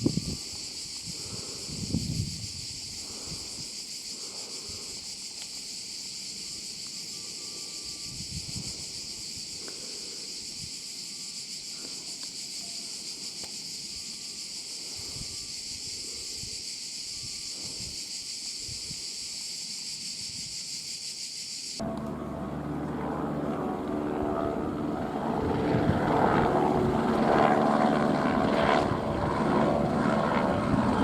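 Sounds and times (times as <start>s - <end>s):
wind rumbling on microphone: 0.0s - 3.6s, 8.0s - 9.4s, 23.8s - 31.0s
insects buzzing: 0.0s - 31.0s.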